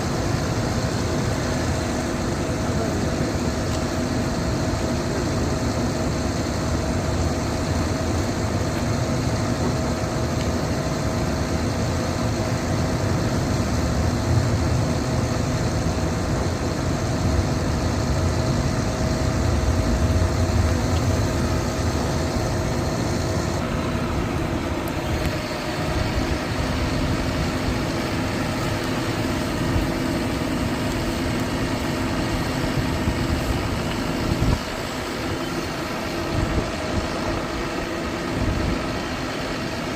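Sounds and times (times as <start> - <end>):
diesel engine running: 0.0 - 39.9
steady hum: 0.0 - 39.9
low rumble: 18.2 - 23.1.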